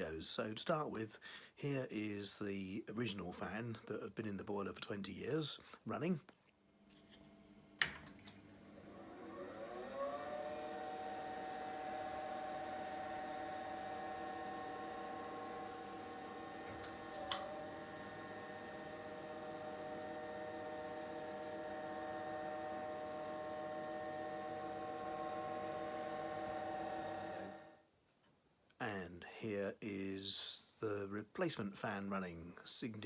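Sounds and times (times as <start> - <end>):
boiler fan droning whine: 7.2 - 27.8
sharp click: 7.8 - 8.4, 16.7 - 17.5.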